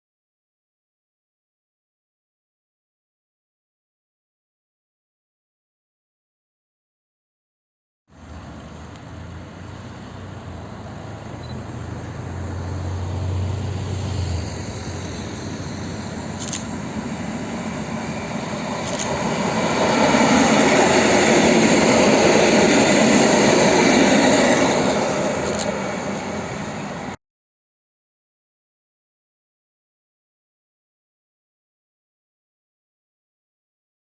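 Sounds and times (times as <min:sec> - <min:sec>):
train passing rumble: 0:08.1 - 0:27.2
sharp clicks: 0:16.4 - 0:16.7.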